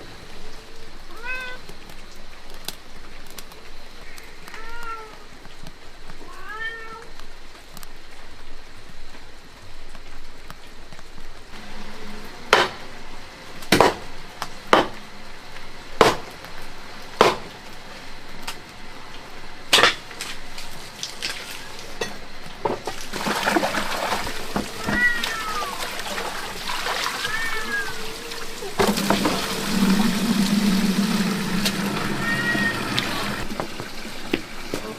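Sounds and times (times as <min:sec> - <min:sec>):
cat meowing: 0:01.1 - 0:01.6, 0:04.5 - 0:05.2, 0:06.2 - 0:07.1, 0:24.7 - 0:26.1, 0:26.9 - 0:28.8, 0:31.9 - 0:33.4.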